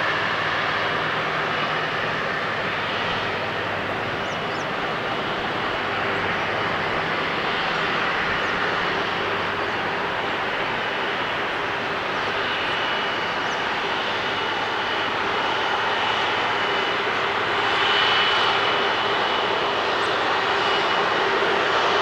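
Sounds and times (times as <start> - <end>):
jet engines whining: 0.0 - 22.0.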